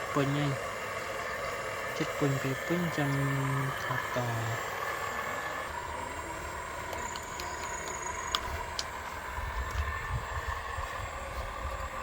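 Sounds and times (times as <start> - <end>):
motor whine: 0.0 - 12.0
low rumble: 3.4 - 12.0
sharp clicks: 6.9 - 9.0.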